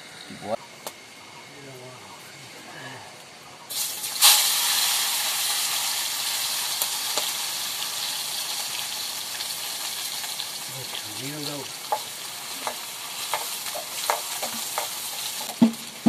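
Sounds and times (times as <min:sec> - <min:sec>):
oil sizzling in a wok: 0:03.7 - 0:16.0.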